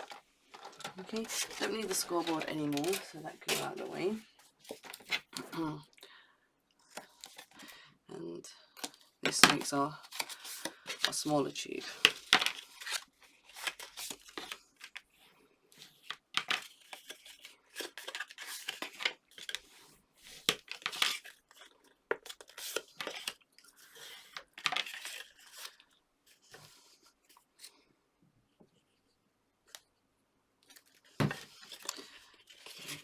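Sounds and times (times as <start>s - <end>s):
stiff card rustling and creasing: 0.0s - 4.0s.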